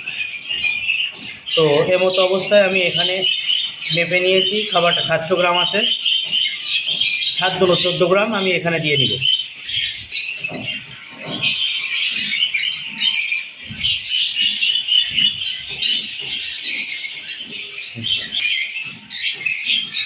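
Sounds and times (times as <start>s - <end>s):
small birds chirping chorus: 0.0s - 20.0s.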